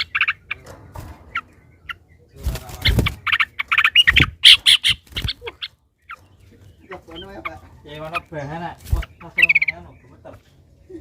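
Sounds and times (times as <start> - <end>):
bird calling harsh chattering: 0.0 - 0.7, 1.3 - 10.4.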